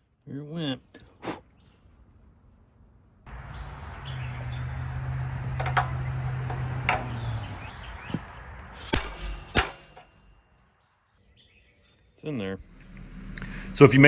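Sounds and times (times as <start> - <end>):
metal clicks and knocks: 5.3 - 7.4
mechanical hum: 12.6 - 14.0.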